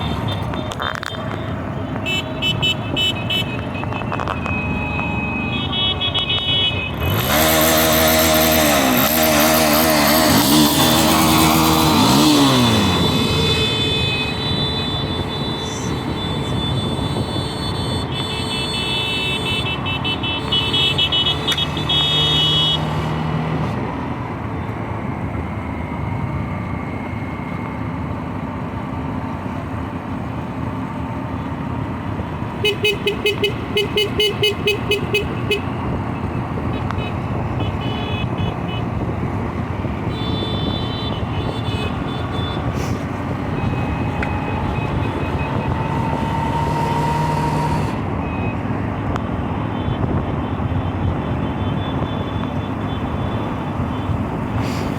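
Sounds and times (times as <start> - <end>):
racing truck engines: 0.0 - 54.9
horn honking in rapid pulses: 1.2 - 23.2, 32.4 - 39.1, 39.9 - 48.6, 49.6 - 54.6.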